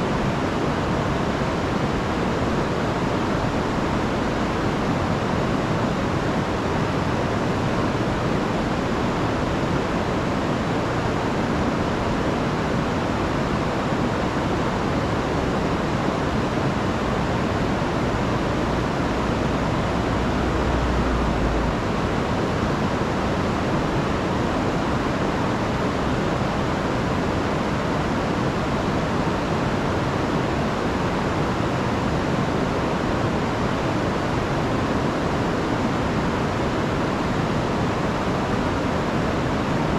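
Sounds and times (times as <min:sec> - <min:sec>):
river rushing over waterfalls: 0:00.0 - 0:39.9
low rumble: 0:18.4 - 0:23.5.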